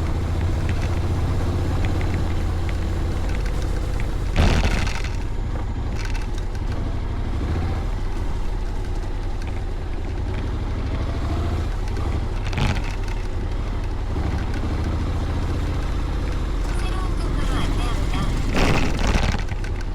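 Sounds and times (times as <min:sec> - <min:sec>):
motorcycle engine rumble: 0:00.0 - 0:19.9.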